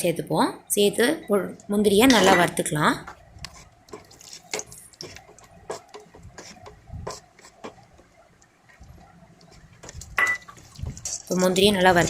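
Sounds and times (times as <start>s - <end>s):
spatula knocking and scraping pan: 2.0s - 8.2s, 9.4s - 12.0s.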